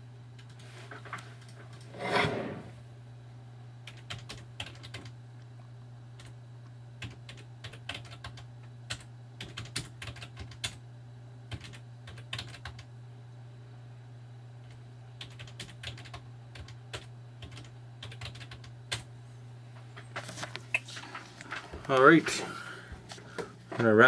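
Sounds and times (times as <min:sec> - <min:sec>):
typing on keyboard: 0:03.9 - 0:05.1, 0:07.0 - 0:10.8, 0:11.5 - 0:12.9, 0:15.2 - 0:19.1.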